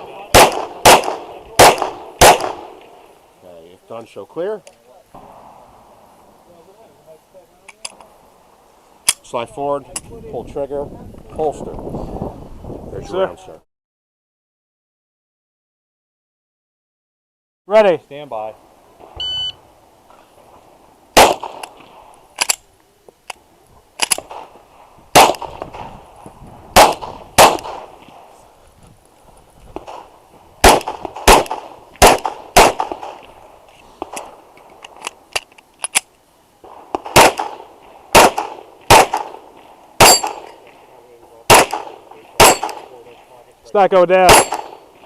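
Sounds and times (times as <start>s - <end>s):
pistol shots: 0.0s - 2.9s, 21.2s - 21.9s, 25.1s - 25.9s, 26.8s - 28.1s, 29.8s - 33.3s, 36.7s - 40.8s, 41.5s - 43.0s, 44.2s - 45.0s
bullets ringing on steel targets: 40.0s - 40.6s, 42.4s - 42.9s, 44.2s - 44.8s.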